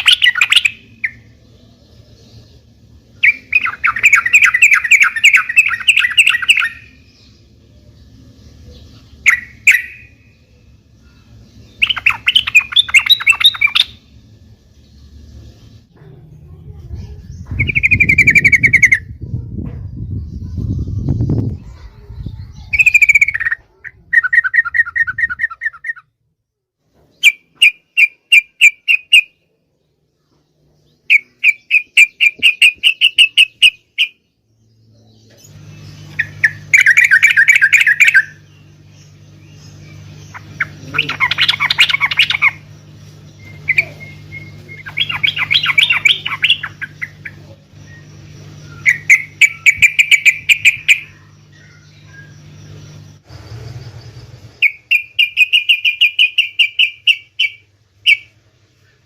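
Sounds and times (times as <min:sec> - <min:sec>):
bulbul chattering song: 0:00.0 - 0:26.2, 0:27.1 - 0:59.0
steady low hum: 0:00.0 - 0:59.0.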